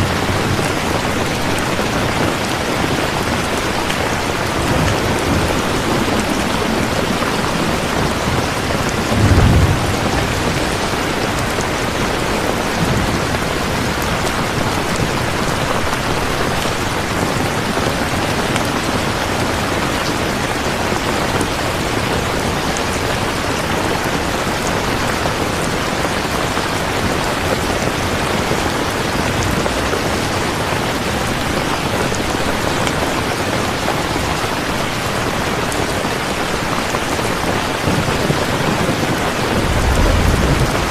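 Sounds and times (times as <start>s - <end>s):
steady rain falling: 0.0s - 40.9s
low rumble: 39.4s - 40.9s.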